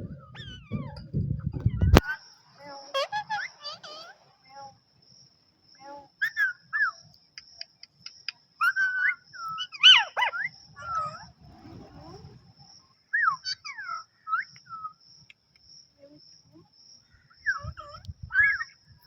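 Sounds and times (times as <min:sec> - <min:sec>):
parrot squawk: 0:02.9 - 0:04.2, 0:09.8 - 0:11.2.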